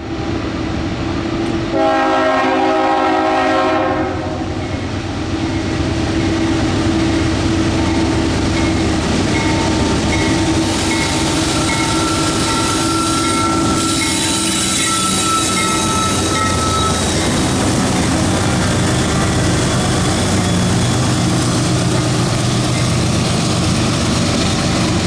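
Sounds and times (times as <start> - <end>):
freight train rumbling: 0.0 - 25.0
locomotive air horn chord: 1.7 - 4.4.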